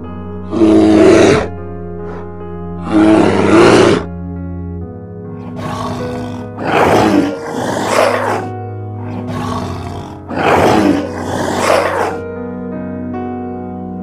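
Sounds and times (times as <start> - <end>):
background music with held notes: 0.0 - 14.0
tiger growling: 0.5 - 4.1, 5.4 - 12.2.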